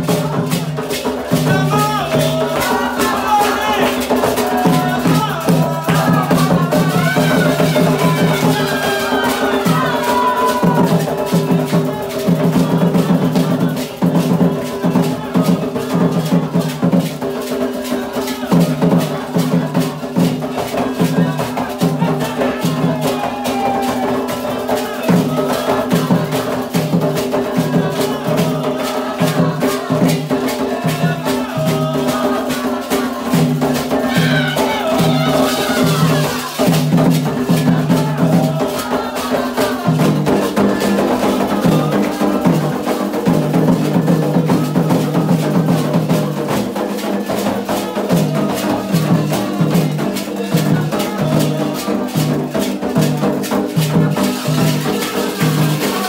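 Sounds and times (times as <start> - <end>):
hand drums beating: 0.0 - 56.0
rattle shaken: 0.0 - 56.0
voices singing: 0.0 - 56.0.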